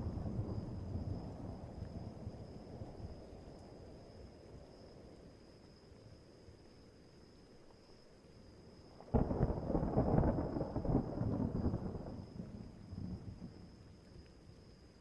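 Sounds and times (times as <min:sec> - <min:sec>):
thunderclap: 0:09.1 - 0:13.6.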